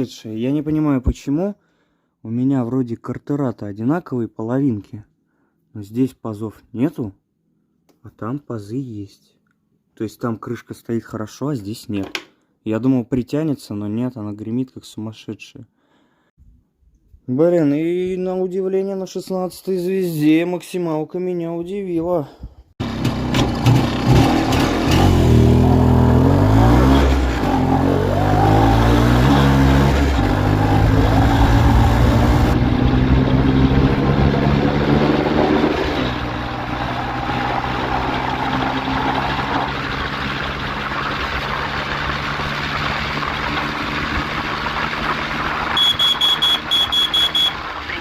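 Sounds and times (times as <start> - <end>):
motorcycle engine accelerating: 22.8 - 48.0
short high beeps: 45.8 - 47.6.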